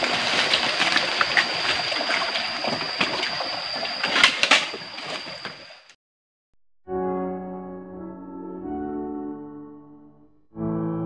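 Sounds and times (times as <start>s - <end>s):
stream water trickling: 0.0s - 5.9s
steady high whine: 0.0s - 6.0s.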